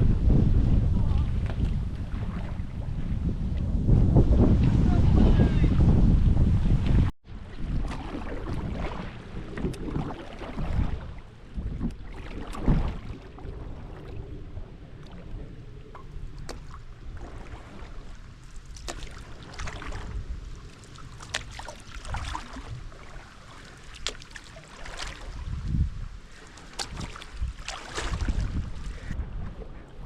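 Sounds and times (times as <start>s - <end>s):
wind rumble on microphone: 0.0s - 30.0s
paddle strokes splashing: 7.4s - 29.8s.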